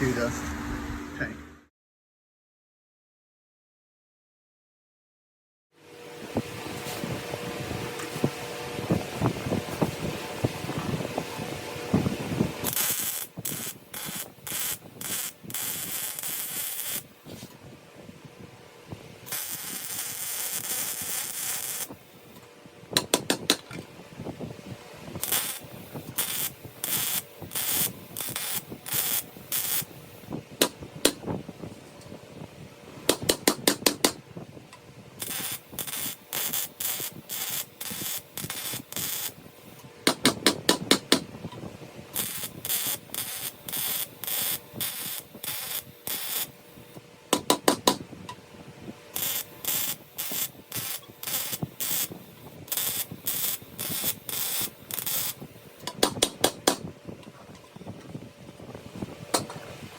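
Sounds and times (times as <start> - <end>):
arc welding hissing bursts: 11.8 - 17.5, 19.2 - 22.4, 25.2 - 31.3, 35.2 - 41.3, 42.1 - 48.0, 49.1 - 56.9.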